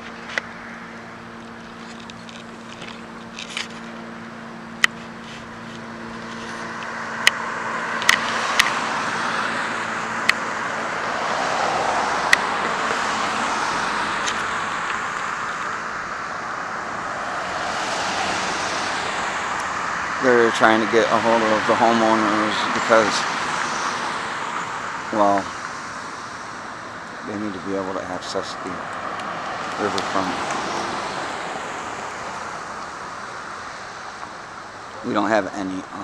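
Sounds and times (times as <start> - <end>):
steady low hum: 0.0 - 11.2
vehicle tyre and engine noise: 0.0 - 36.0.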